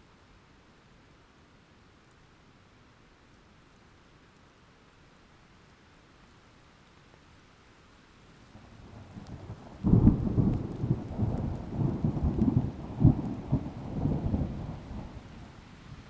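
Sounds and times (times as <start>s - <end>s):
thunder crack and rumble: 8.9s - 15.6s.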